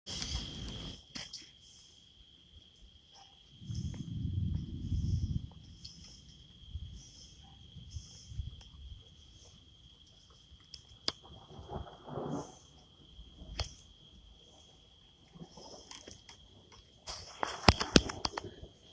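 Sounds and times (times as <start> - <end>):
insects trilling and chirping: 0.1 - 18.9
low rumble: 3.6 - 9.0.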